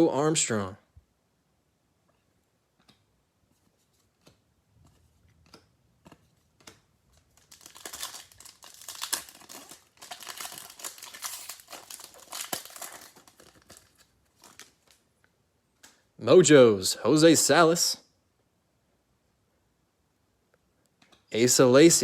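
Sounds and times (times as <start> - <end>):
wrapper tearing and crinkling: 7.2 - 15.0.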